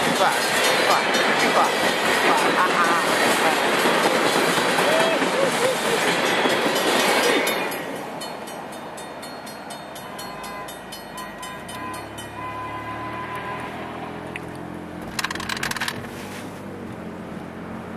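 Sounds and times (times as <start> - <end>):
crossing bell ticking: 0.0 - 4.8, 6.1 - 13.4
train wheels rumbling: 0.0 - 12.5
road noise: 0.0 - 17.9
car engine hum: 11.5 - 17.9.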